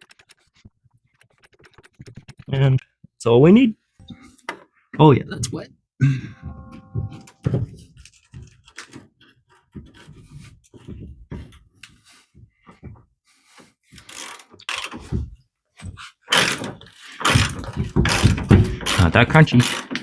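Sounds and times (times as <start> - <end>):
tool knocks: 6.4 - 7.5.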